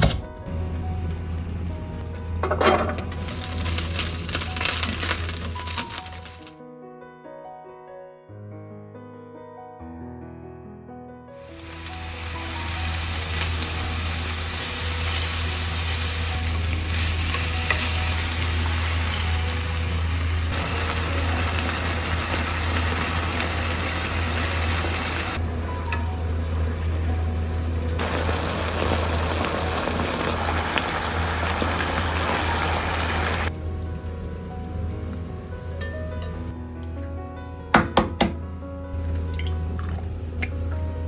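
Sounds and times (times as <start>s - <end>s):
food sizzling in hot oil: 0.8s - 6.6s, 11.4s - 34.2s.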